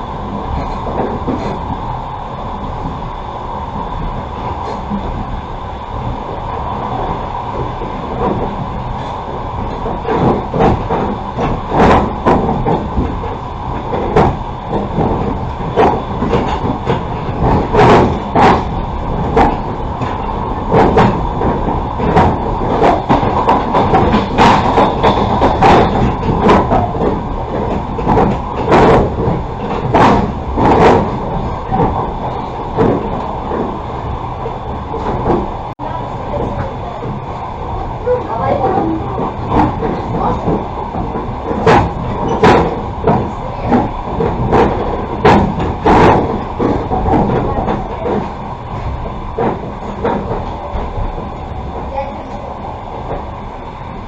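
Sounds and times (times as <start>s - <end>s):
wheel clacks over rail joints: 0.0s - 1.8s, 3.8s - 54.0s
railway carriage rolling rumble: 0.0s - 54.0s.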